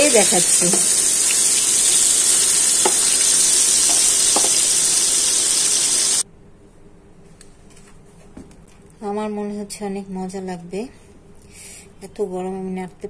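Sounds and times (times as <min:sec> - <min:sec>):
food sizzling in hot oil: 0:00.0 - 0:06.2.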